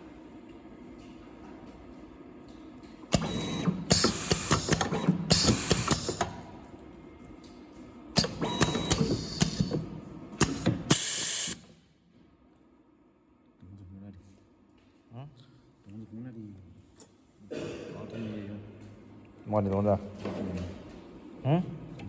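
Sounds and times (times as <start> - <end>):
machine clattering and clicking: 3.1 - 6.4, 8.2 - 11.0.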